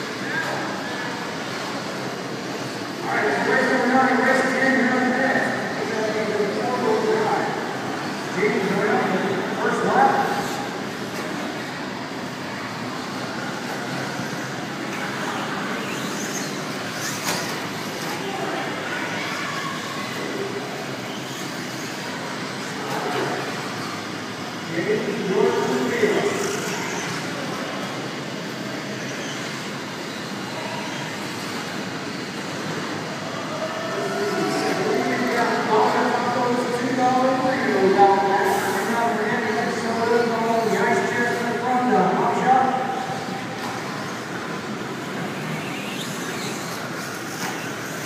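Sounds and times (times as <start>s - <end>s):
rc truck motor whine: 10.2s - 37.0s, 43.0s - 48.0s.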